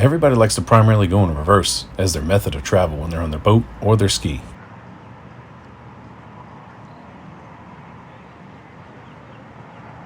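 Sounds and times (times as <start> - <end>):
watercraft engine humming: 0.0 - 4.6
outdoor background noise: 0.0 - 10.0.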